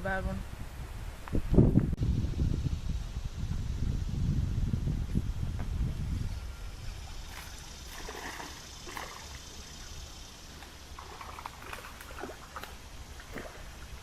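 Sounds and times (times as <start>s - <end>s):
creek water splashing and trickling: 6.8s - 14.0s.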